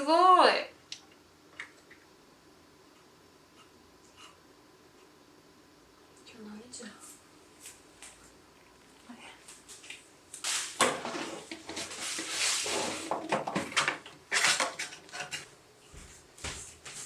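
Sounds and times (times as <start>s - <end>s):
rustling and light clattering: 9.4s - 17.0s.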